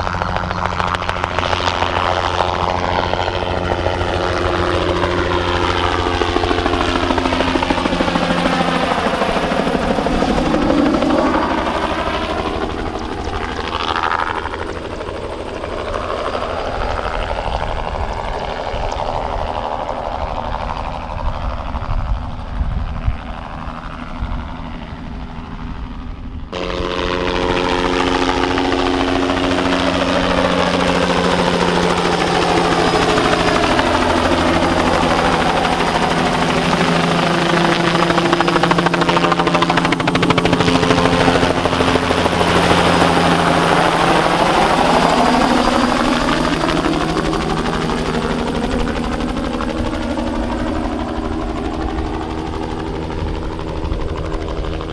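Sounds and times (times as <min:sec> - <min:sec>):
helicopter flying low: 0:00.0 - 0:54.9.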